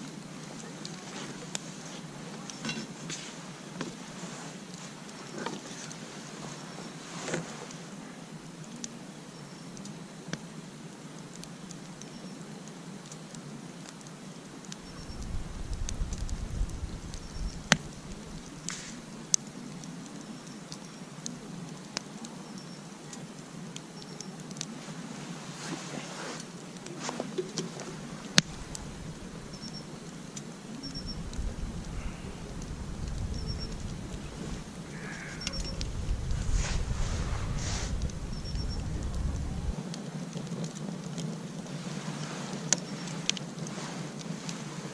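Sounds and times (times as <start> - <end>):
campfire crackling and popping: 0.0 - 44.9
low rumble: 30.8 - 39.8.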